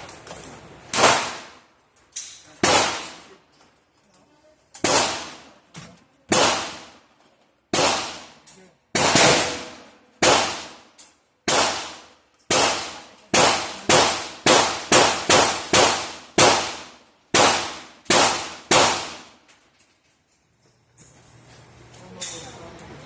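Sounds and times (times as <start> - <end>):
gunshots: 0.9 - 1.6, 2.6 - 3.2, 4.8 - 5.5, 6.3 - 7.0, 7.7 - 19.4.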